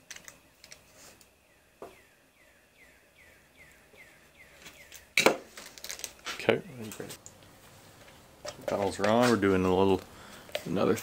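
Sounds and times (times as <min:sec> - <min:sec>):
plastic zip bag crinkling: 0:05.5 - 0:06.3.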